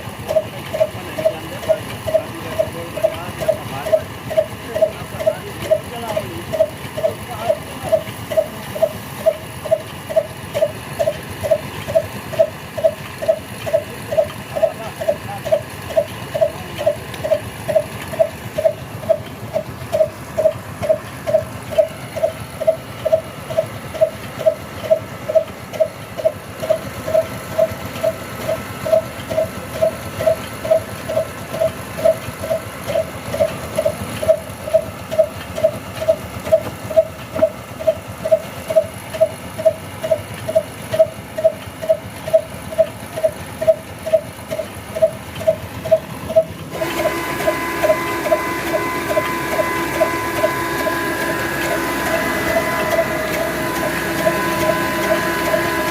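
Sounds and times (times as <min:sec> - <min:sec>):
diesel engine thumping: 0:00.0 - 0:55.9
steady whine: 0:44.5 - 0:55.9.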